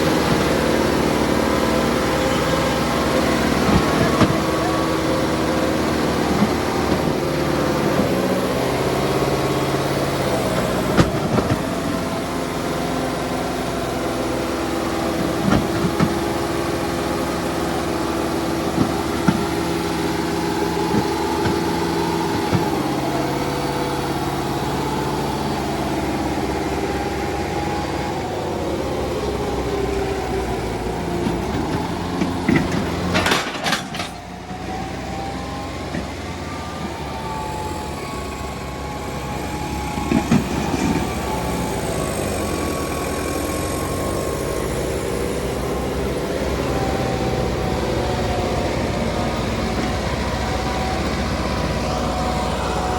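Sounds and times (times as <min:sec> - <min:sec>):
tractor diesel engines running: 0:00.0 - 0:52.9
loud clatter: 0:31.1 - 0:34.4.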